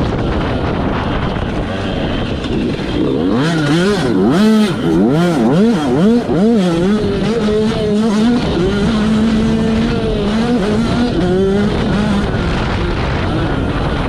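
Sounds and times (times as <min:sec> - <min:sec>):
motocross engine revving: 0:00.0 - 0:14.0.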